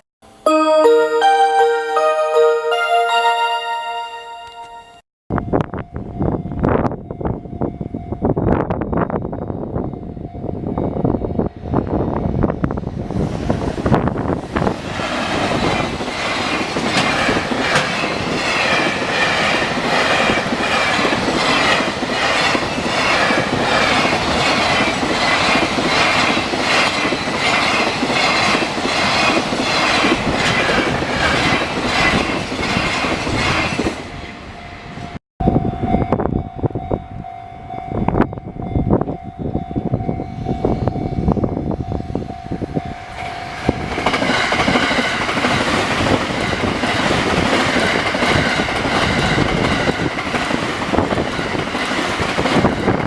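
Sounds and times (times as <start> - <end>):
steady tone: 0.5 - 5.0.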